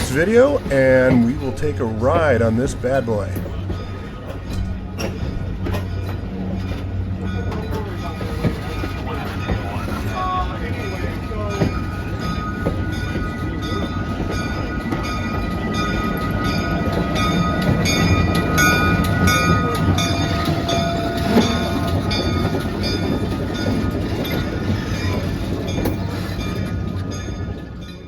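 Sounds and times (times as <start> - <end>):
train low rumble: 0.0 - 28.0
regular ringing bell: 10.8 - 28.0.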